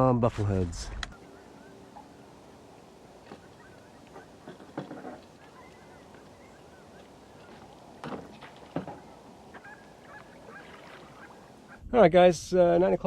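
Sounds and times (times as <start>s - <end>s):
faint short bird calls: 1.1s - 11.8s
soft knocks: 3.1s - 11.0s.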